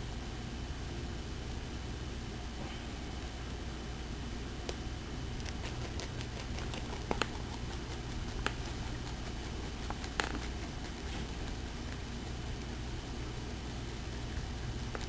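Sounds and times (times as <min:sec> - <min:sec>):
rabbit chewing: 0:03.1 - 0:15.0.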